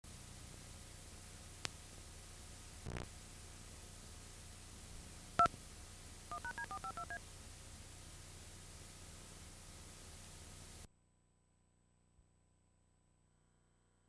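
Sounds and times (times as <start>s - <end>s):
faint hiss: 0.1s - 10.9s
click: 1.6s - 1.8s
keypad dialing tones: 6.3s - 7.2s.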